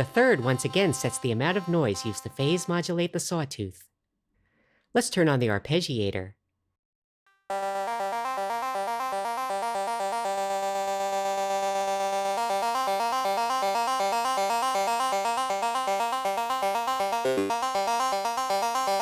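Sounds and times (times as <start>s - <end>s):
buzzy synth arpeggio: 0.0s - 2.8s, 7.5s - 19.0s.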